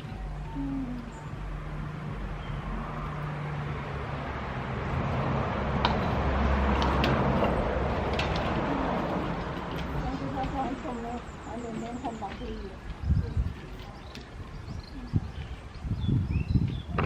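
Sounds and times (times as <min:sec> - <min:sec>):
vehicle engine running: 0:00.0 - 0:12.3.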